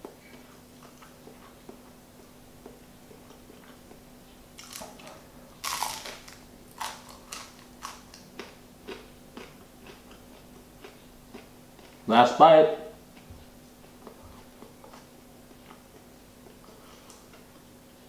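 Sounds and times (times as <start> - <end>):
crunchy chewing: 0.1 - 12.1, 13.0 - 17.8
crunchy bite of bread: 4.6 - 12.0.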